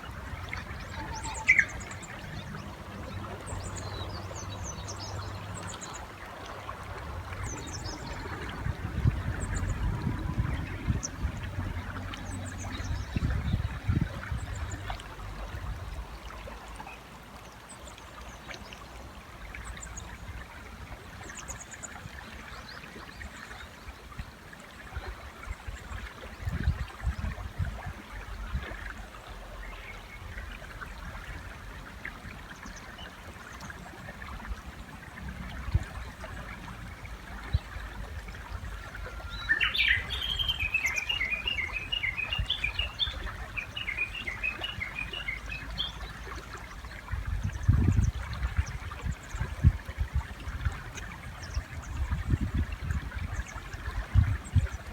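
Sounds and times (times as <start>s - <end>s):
bird whistle and trilled call: 0.9s - 2.0s, 39.2s - 45.9s
river rushing: 38.7s - 46.2s
small birds chirping: 39.3s - 46.1s.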